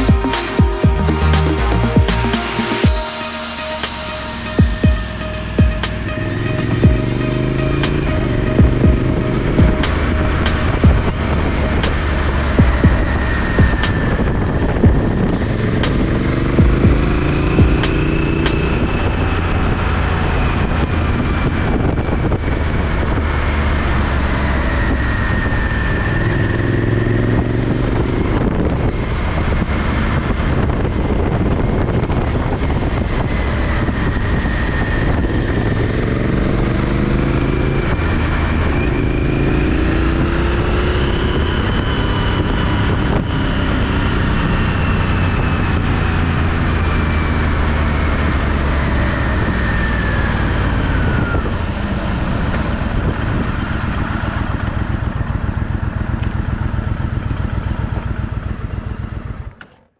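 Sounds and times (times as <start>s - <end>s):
motorcycle engine running: 5.6s - 23.2s, 50.9s - 59.6s
wind noise: 27.4s - 57.4s.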